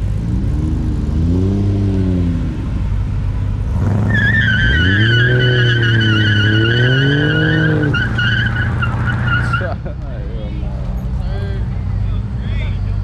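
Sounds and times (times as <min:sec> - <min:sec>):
car engine revving: 0:00.0 - 0:13.0
tire squeal: 0:03.8 - 0:09.8.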